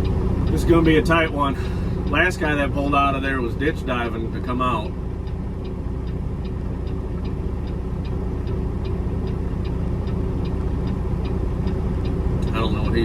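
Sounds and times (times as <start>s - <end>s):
diesel truck engine running: 0.0s - 13.0s
light regular ticking: 0.0s - 13.0s.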